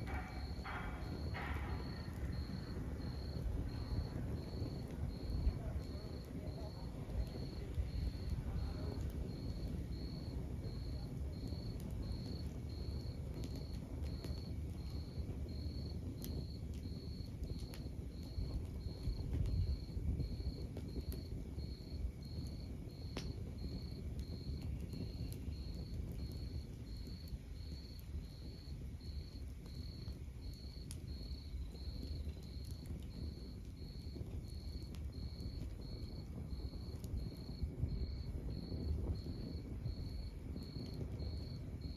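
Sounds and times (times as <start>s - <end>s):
cricket chirping: 0.0s - 41.9s
wood fire crackling: 0.0s - 41.9s.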